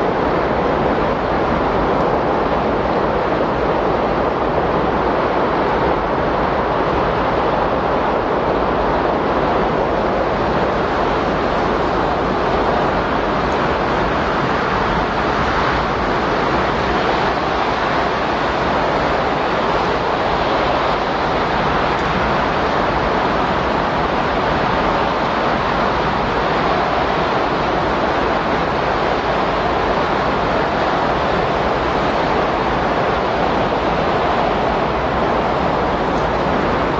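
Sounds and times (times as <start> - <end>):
steady rush of wind: 0.0 - 36.9.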